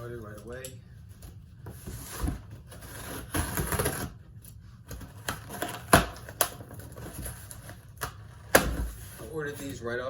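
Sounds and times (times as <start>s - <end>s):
scraping rustle of cardboard: 8.8s - 9.8s.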